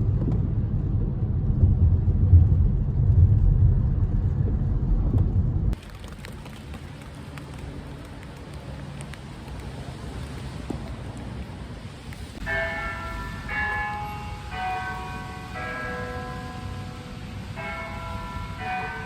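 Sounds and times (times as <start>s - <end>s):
car rumble while driving: 0.0s - 6.0s
faint raindrops: 0.0s - 19.0s.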